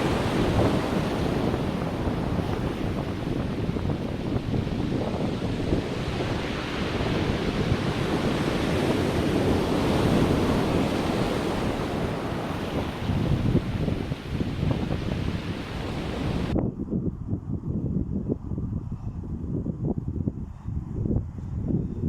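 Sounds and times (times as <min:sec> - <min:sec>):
ocean surf washing onto beach: 0:00.0 - 0:16.5
wind buffeting microphone: 0:00.0 - 0:22.0.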